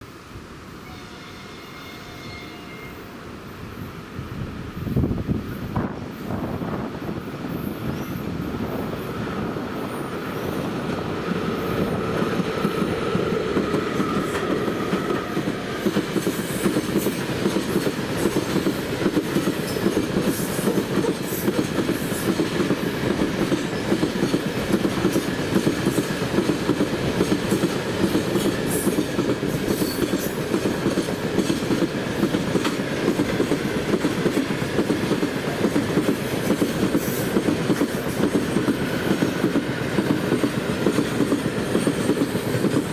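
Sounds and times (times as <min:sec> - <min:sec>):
train wheels clattering over rail joints: 0:12.0 - 0:42.9.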